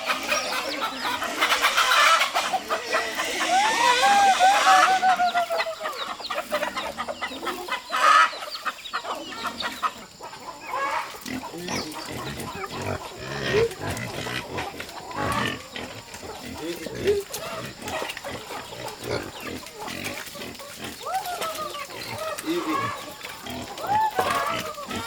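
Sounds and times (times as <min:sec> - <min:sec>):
loud animal call: 0:00.0 - 0:06.0
chickens clucking: 0:00.0 - 0:25.0
pigs grunting: 0:00.0 - 0:25.0.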